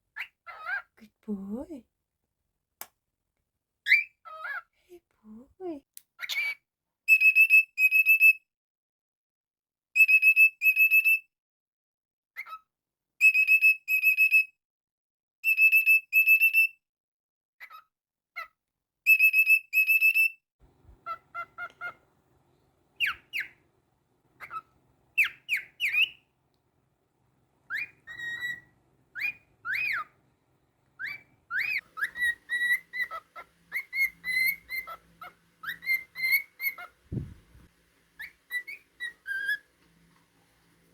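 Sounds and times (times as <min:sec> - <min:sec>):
cockatiel whistling: 0:20.9 - 0:22.0, 0:23.0 - 0:23.6, 0:24.4 - 0:26.3, 0:27.7 - 0:30.2, 0:31.0 - 0:39.7
cockatiel chirps swooping in pitch: 0:21.0 - 0:22.0, 0:23.0 - 0:23.6, 0:24.4 - 0:26.2, 0:27.7 - 0:30.1, 0:31.0 - 0:39.7.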